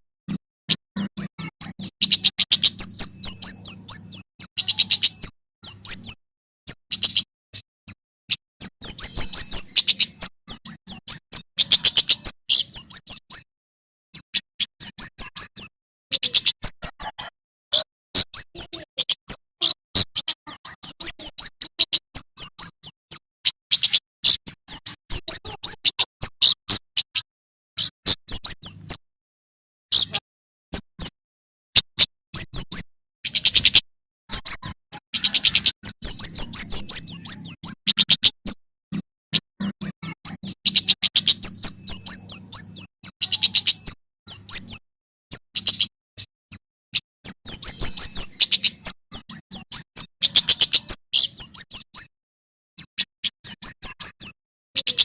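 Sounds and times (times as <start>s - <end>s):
bird singing high sharp chirps: 0.2s - 13.5s, 14.1s - 29.0s, 29.9s - 31.2s, 31.8s - 52.1s, 52.8s - 55.0s.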